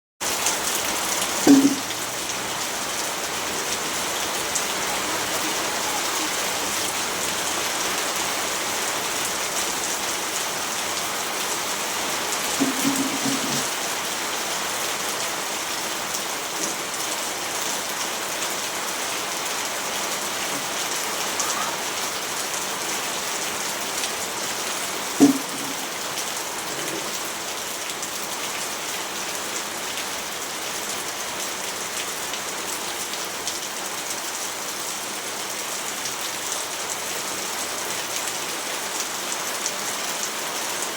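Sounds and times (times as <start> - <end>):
steady rainfall: 0.2 - 40.9
single drop hits: 1.5 - 1.9.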